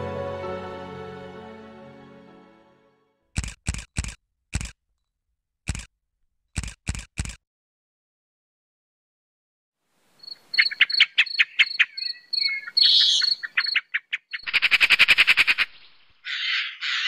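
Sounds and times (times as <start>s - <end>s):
harsh rasping bird calls: 10.2s - 17.0s.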